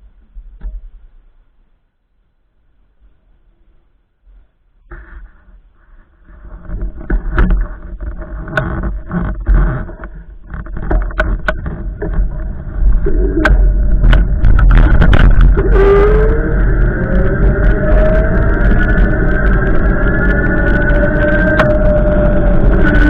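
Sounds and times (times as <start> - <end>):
wind buffeting microphone: 6.4 - 23.0
knocks and rattles: 6.6 - 16.2.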